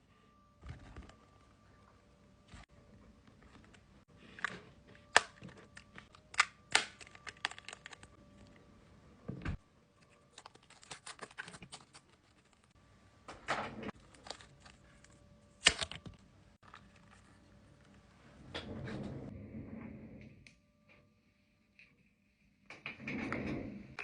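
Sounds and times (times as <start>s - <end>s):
packaging rustling: 3.4s - 8.6s, 10.0s - 12.7s, 13.9s - 17.4s.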